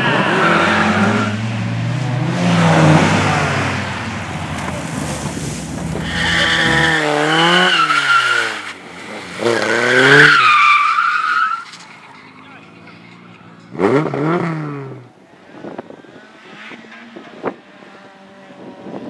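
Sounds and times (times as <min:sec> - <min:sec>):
tyres squealing and skidding: 0:00.0 - 0:01.5, 0:04.5 - 0:14.0
race car engine revving: 0:00.0 - 0:10.7.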